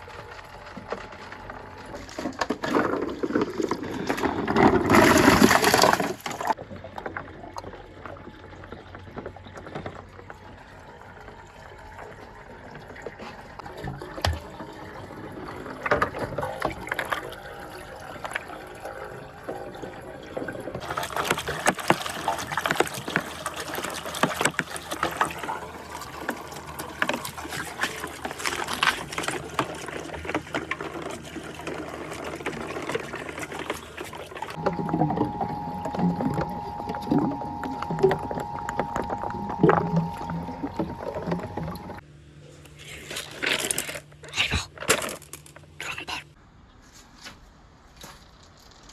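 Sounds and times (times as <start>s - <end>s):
marbles rolling and clicking in pipes: 0.0s - 42.0s
water running down a marble run: 0.0s - 42.0s
steady tone: 34.6s - 42.0s.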